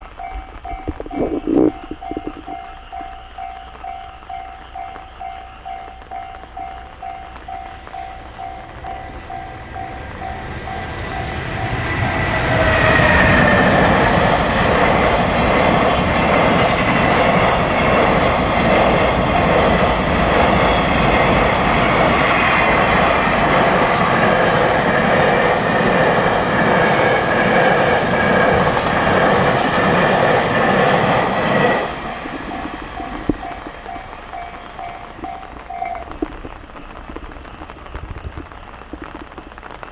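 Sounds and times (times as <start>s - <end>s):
repeating beeping tone: 0.2s - 3.3s
freight train wheels clattering: 1.8s - 39.5s.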